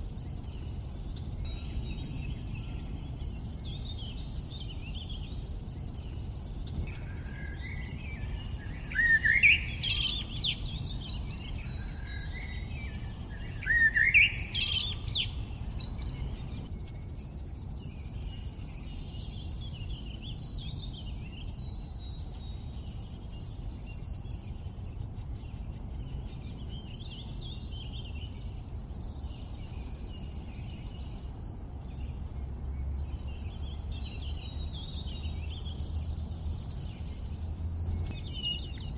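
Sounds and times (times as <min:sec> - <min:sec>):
birds chirping and trilling: 0:00.0 - 0:38.9
low steady rumble: 0:00.0 - 0:38.9.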